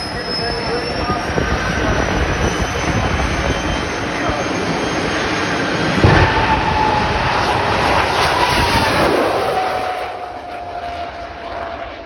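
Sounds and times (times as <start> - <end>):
jet turbine engine roaring: 0.0 - 12.0.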